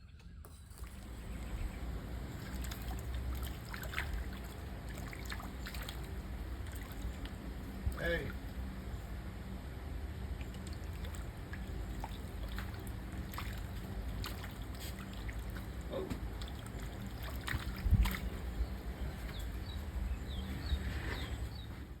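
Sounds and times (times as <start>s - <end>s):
steady low hum: 0.0s - 22.0s
water sloshing around boat: 0.0s - 22.0s.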